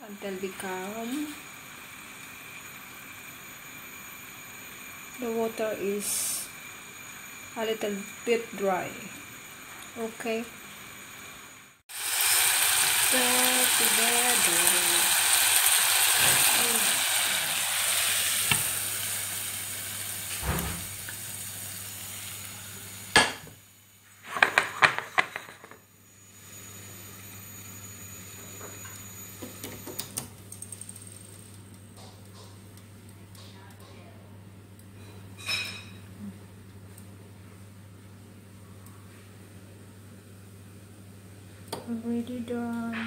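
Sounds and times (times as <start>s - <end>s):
food sizzling in a pot: 0.0s - 31.7s.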